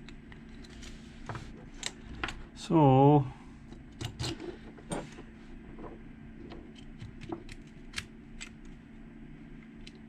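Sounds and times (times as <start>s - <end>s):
small metal lock parts clicking: 3.9s - 4.4s.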